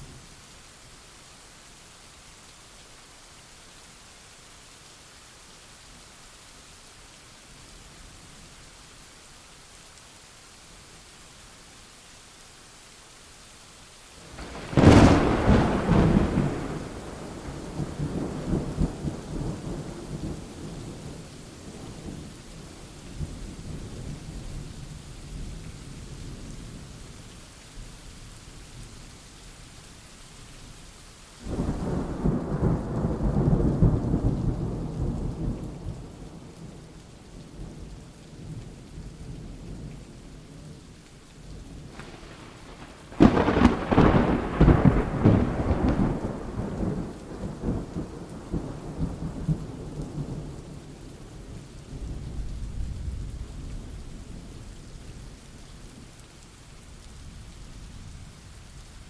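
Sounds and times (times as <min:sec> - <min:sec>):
steady rain: 0:00.0 - 0:59.0
sharp crackling thunder peal: 0:14.4 - 0:21.8, 0:41.8 - 0:50.7
rolling thunder: 0:14.4 - 0:21.9, 0:41.8 - 0:50.7.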